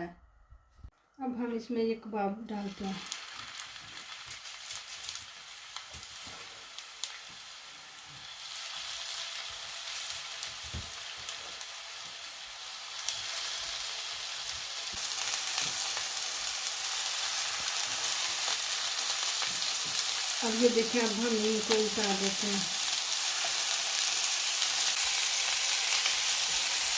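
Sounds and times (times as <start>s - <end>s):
kebabs sizzling in oil: 2.4s - 26.9s.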